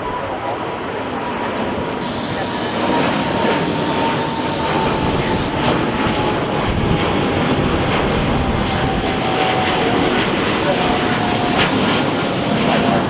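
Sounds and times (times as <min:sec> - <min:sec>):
jet engines at takeoff power: 0:00.0 - 0:13.0
thin whine falling in pitch: 0:02.0 - 0:05.6.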